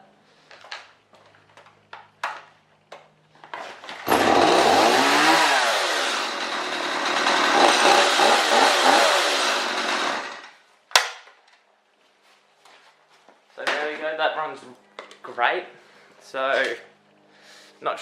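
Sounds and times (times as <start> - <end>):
chainsaw revving: 4.0 - 10.6.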